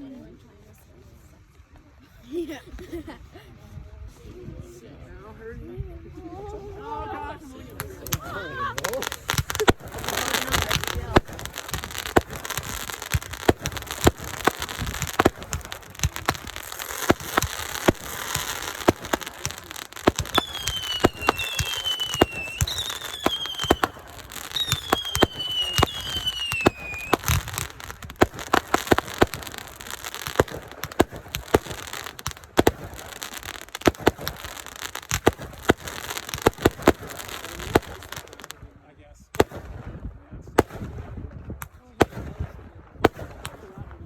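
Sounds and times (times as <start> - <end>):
fireworks bangs: 7.8 - 38.5, 39.4 - 39.8, 40.6 - 43.6
whistling firework shells: 7.8 - 38.5
fireworks crackle: 7.8 - 38.6, 39.4 - 39.6.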